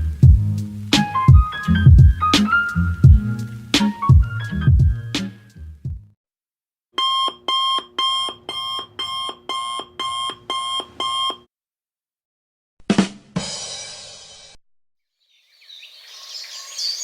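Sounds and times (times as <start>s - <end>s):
music: 0.0s - 6.2s, 12.9s - 14.6s
alarm clock beeping: 7.0s - 11.4s.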